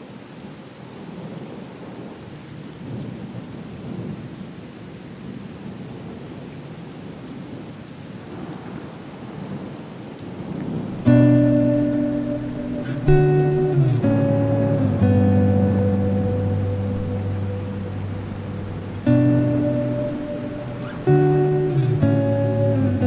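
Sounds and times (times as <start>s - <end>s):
heavy rain pouring: 0.7s - 23.0s
music with plucked chord: 11.1s - 23.0s.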